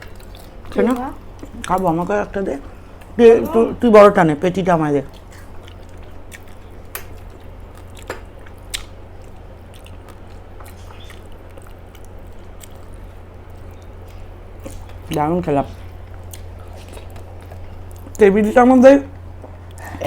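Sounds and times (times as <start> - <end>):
chewing with wet mouth sounds: 0.0 - 3.8, 5.1 - 18.4.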